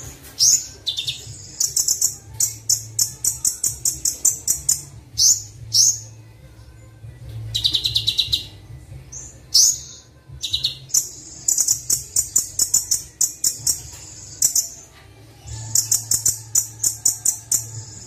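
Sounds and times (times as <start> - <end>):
bird chirping high sharp chips: 0.0 - 6.1, 9.1 - 14.8.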